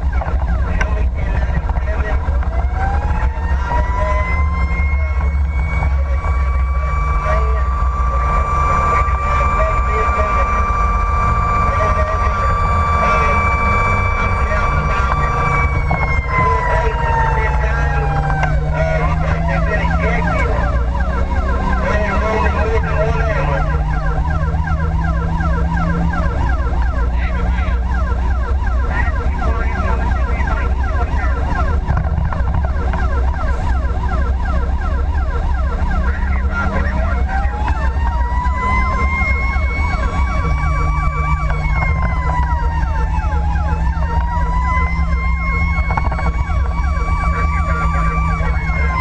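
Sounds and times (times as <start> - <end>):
engine drone: 0.0 - 49.0
siren yelping: 0.0 - 49.0
wailing siren: 0.0 - 49.0.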